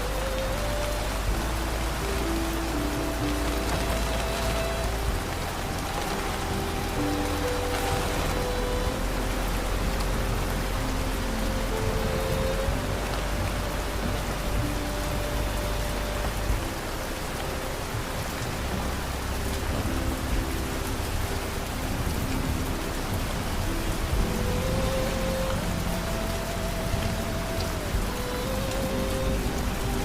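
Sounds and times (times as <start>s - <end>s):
slow music of held notes: 0.0s - 30.0s
steady rain falling: 0.0s - 30.0s.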